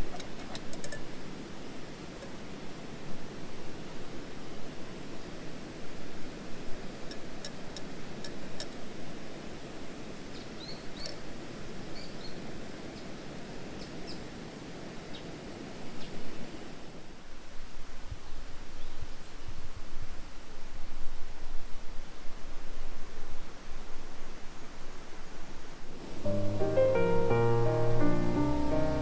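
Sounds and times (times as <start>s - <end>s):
outdoor ambient noise: 0.0s - 29.0s
faint bird chirps: 10.3s - 13.1s.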